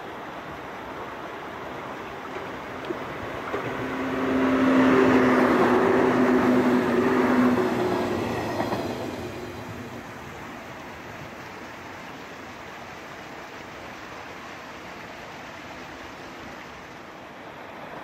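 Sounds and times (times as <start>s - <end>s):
electric train passing: 0.9s - 12.2s.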